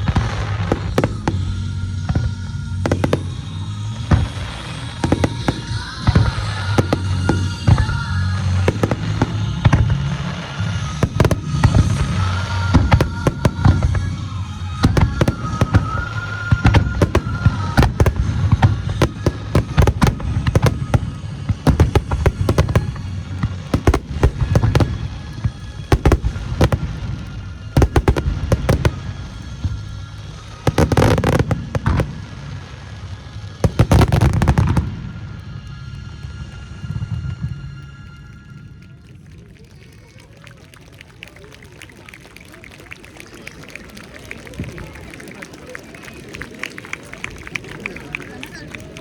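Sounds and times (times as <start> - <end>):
music playing: 0.1 - 38.9
firework shells bursting: 11.0 - 12.1, 12.8 - 14.0, 14.7 - 32.3, 33.7 - 35.0.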